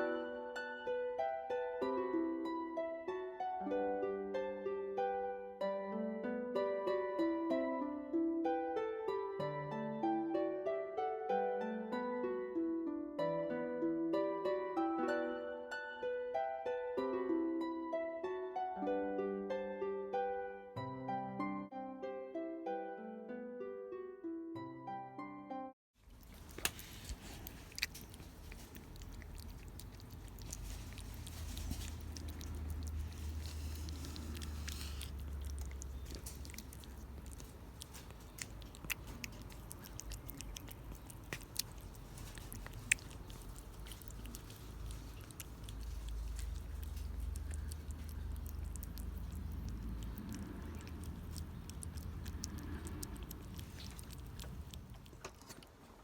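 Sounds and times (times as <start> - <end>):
cat chewing food: 26.0 - 56.0.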